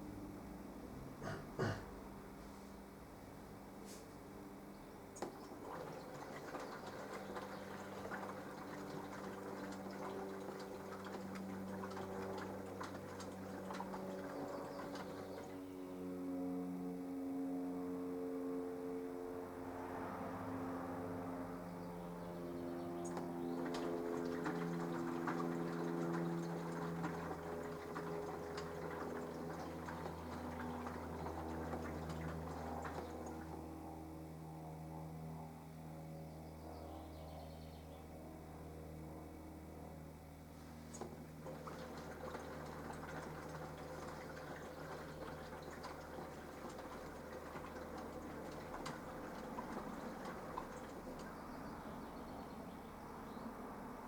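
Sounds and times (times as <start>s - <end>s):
washing machine motor hum: 4.2s - 18.2s, 22.4s - 35.2s, 38.7s - 54.0s
water sloshing in drum: 5.2s - 15.7s, 23.0s - 33.8s, 40.9s - 52.4s.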